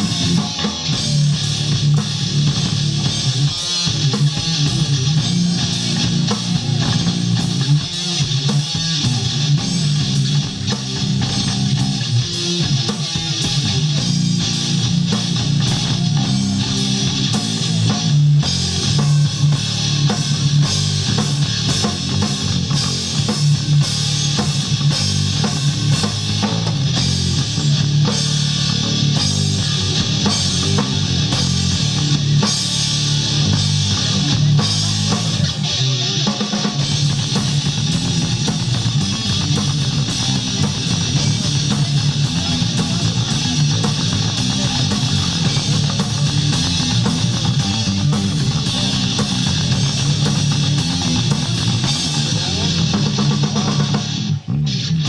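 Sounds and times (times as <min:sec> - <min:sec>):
drum kit: 0:00.0 - 0:54.8
electric guitars: 0:00.0 - 0:55.0
rock band playing loudly: 0:00.0 - 0:55.0.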